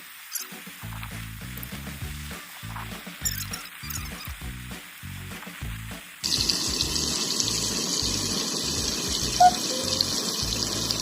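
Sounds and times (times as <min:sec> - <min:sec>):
background music with steady beat: 0:00.0 - 0:11.0
chicken frying in a pan: 0:00.0 - 0:11.0.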